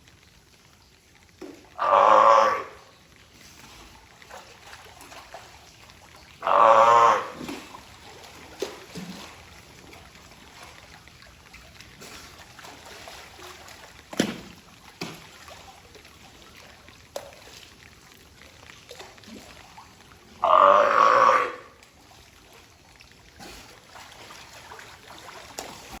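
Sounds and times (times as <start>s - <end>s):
water trickling: 0.0s - 26.0s
brief splashes or knocks: 14.1s - 15.6s.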